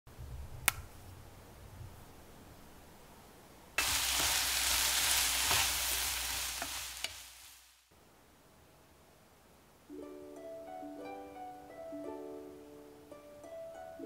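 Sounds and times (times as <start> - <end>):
plant stem snapping: 0.6 - 0.9
loud sizzle of frying: 3.8 - 7.9.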